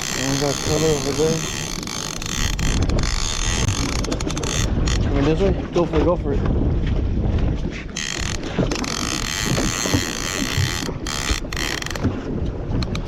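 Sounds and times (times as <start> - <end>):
fishing reel ratcheting whir: 0.0 - 5.1, 7.9 - 12.1.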